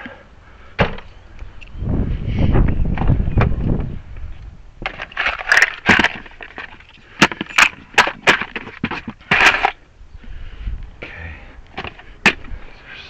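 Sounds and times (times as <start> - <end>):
rustling of tools being handled: 4.8 - 9.8.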